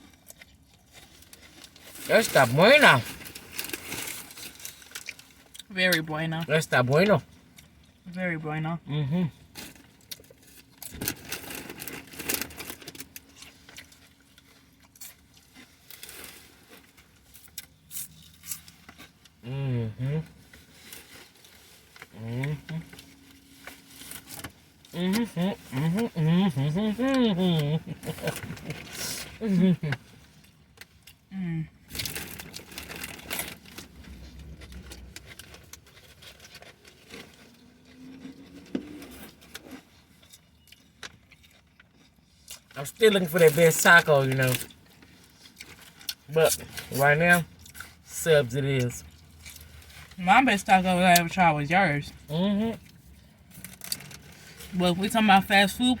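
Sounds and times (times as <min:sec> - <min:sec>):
person chewing food: 0:00.0 - 0:02.0, 0:20.2 - 0:42.8
food packaging crinkling: 0:00.0 - 0:05.7, 0:09.5 - 0:19.4, 0:22.8 - 0:31.2, 0:31.9 - 0:48.2, 0:52.0 - 0:56.0.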